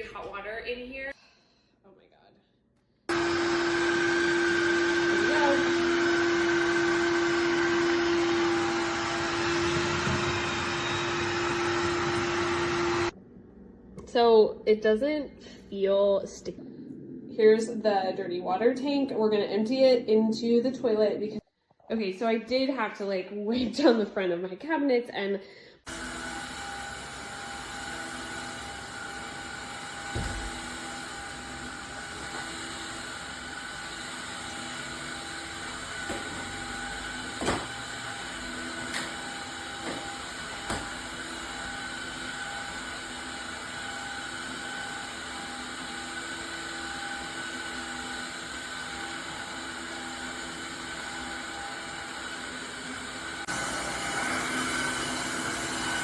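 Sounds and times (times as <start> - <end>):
floor cleaner motor humming: 3.1 - 13.2, 25.9 - 56.0.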